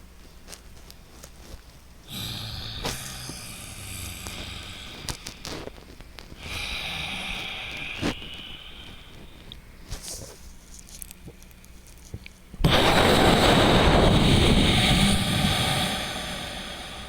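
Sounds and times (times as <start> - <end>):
hissing breaths through nose: 2.0 - 10.4, 12.6 - 17.0.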